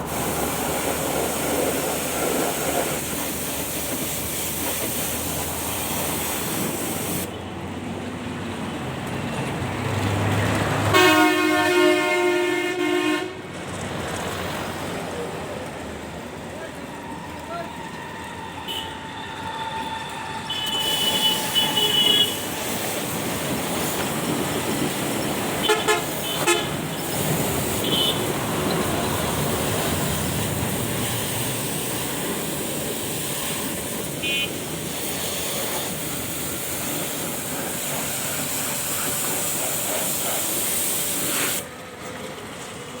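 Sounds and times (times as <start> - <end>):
vehicle horn toots: 10.9 - 13.4, 18.6 - 19.1, 20.5 - 22.6, 25.6 - 28.4, 34.2 - 34.7
loud rushing noise: 20.4 - 41.6.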